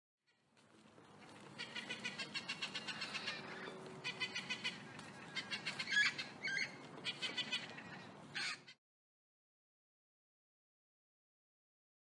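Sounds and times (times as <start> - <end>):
birds chirping: 1.1 - 8.8.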